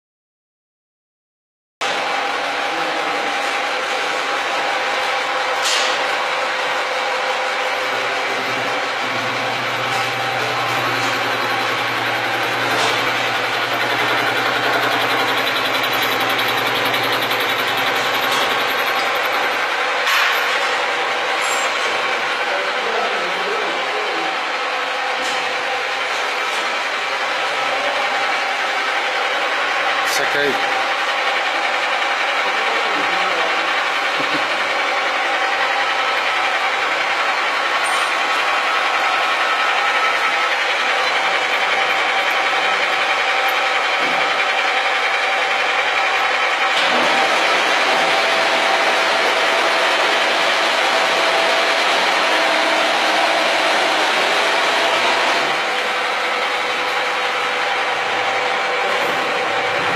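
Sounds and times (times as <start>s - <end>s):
milling machine cutting noise: 7.2s - 20.2s, 38.6s - 59.9s
motor hum: 7.3s - 20.1s.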